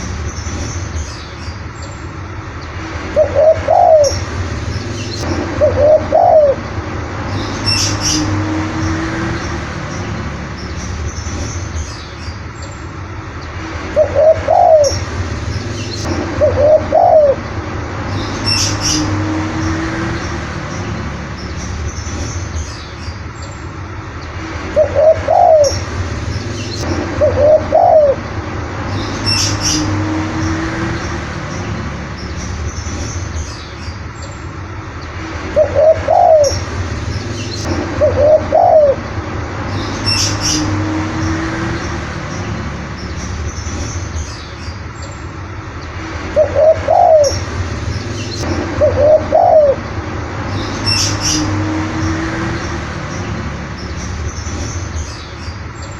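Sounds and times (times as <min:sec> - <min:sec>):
dove cooing: 0:03.2 - 0:04.2, 0:05.6 - 0:06.6, 0:14.0 - 0:15.0, 0:16.4 - 0:17.4, 0:24.8 - 0:25.8, 0:27.2 - 0:28.2, 0:35.6 - 0:36.6, 0:38.0 - 0:39.0, 0:46.4 - 0:47.4, 0:48.8 - 0:49.8.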